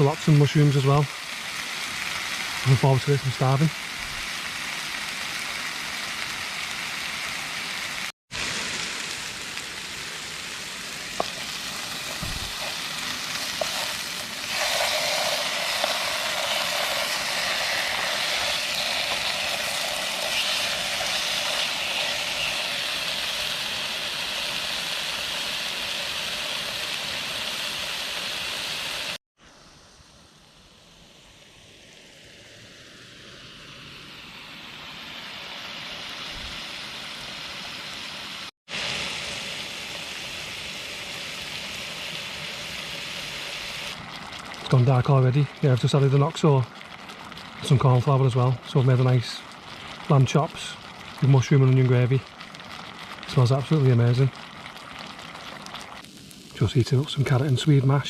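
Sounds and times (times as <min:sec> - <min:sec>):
meat sizzling in a pan: 0:00.0 - 0:29.2, 0:35.4 - 0:58.0.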